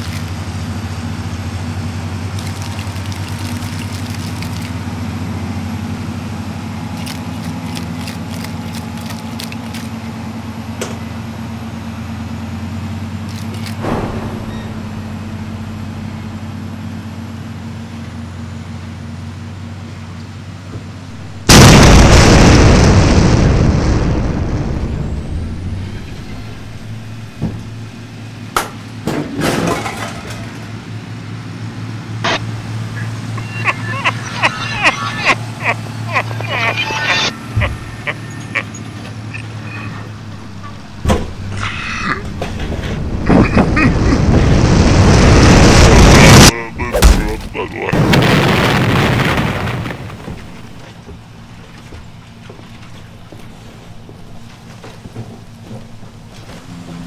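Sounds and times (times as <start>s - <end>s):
loud boom: 13.8s - 16.5s, 21.2s - 28.0s, 39.4s - 50.8s.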